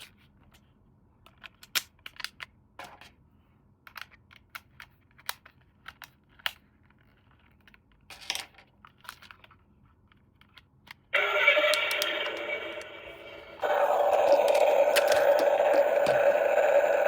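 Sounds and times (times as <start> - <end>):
plastic clicks and clacks: 1.2 - 3.2, 3.9 - 11.1, 13.6 - 17.0
loud steady sound: 11.2 - 17.0.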